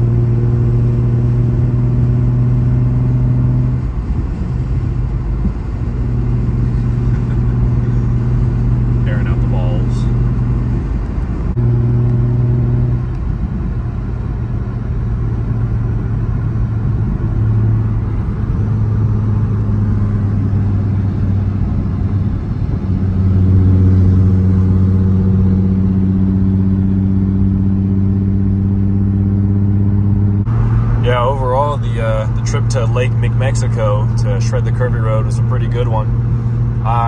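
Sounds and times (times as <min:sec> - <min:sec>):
car engine cruising: 0:00.0 - 0:37.0.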